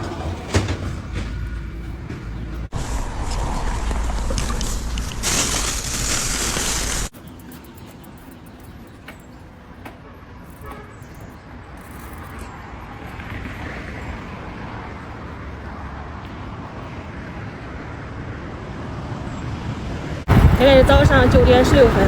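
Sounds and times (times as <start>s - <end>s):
road traffic rumble: 0.0s - 22.0s
vehicle passing by: 12.6s - 22.0s.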